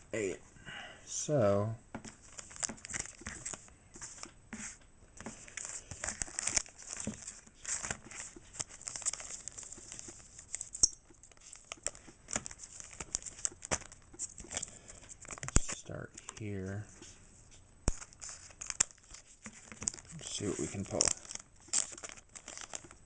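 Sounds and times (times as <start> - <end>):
foil wrapper crinkling and tearing: 5.4 - 16.4, 17.9 - 23.0.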